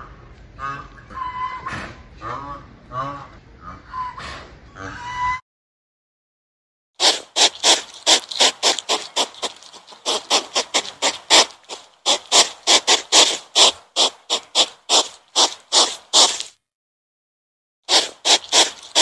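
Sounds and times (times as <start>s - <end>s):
animal making short noisy calls: 7.0s - 16.5s, 17.9s - 19.0s.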